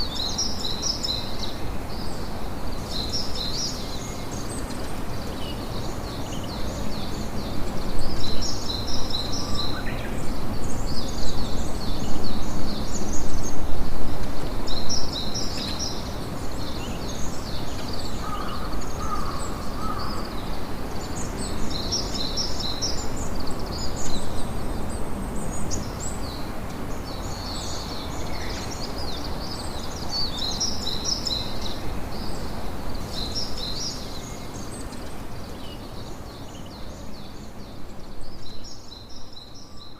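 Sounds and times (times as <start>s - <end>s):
small birds chirping: 14.5s - 39.9s.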